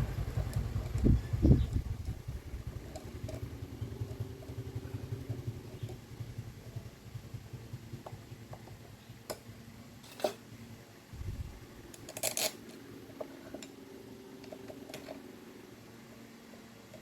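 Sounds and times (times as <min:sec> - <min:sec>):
metal parts clinking and scraping: 0:10.0 - 0:10.4, 0:11.9 - 0:13.7.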